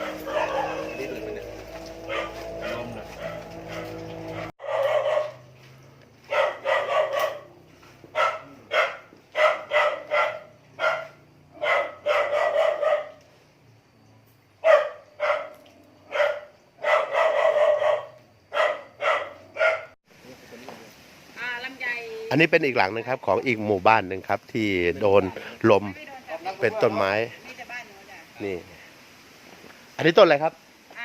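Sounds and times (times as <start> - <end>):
dog barking: 0.0 - 5.5, 6.2 - 13.2, 14.6 - 20.0.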